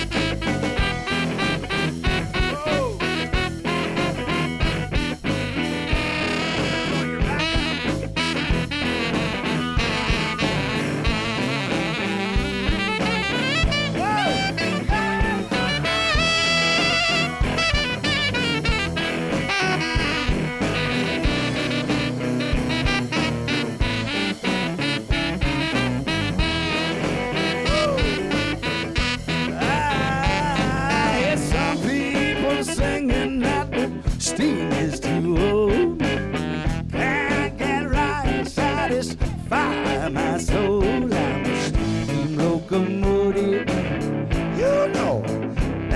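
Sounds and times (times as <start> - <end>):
lead instrument bending notes: 0.0 - 31.3
blues band playing: 0.0 - 45.9.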